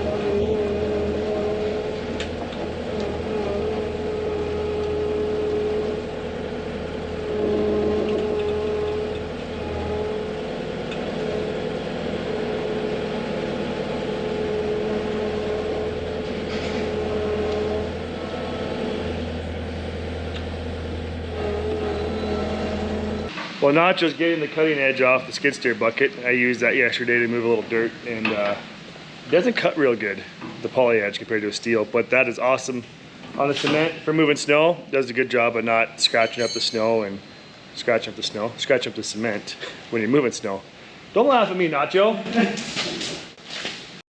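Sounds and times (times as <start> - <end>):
steady humming tone: 0.0 - 23.3
vehicle engine droning: 0.0 - 23.3.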